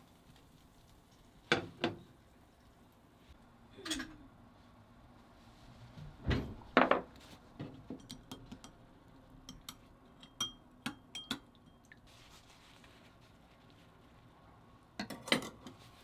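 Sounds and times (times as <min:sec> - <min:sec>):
utensils and dishes clinking: 0:15.0 - 0:15.8.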